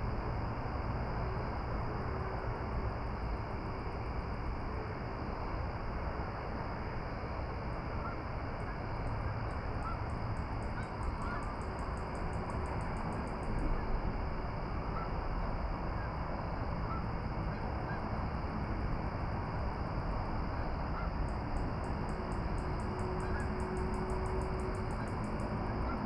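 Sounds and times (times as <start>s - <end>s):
faint bird calls: 10.7s - 11.6s.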